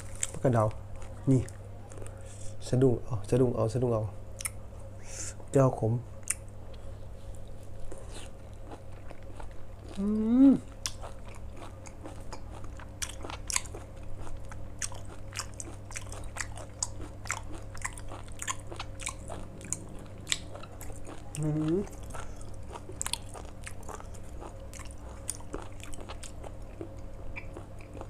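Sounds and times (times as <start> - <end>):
person chewing food: 6.2 - 28.0
person humming: 10.0 - 10.7, 21.3 - 21.9.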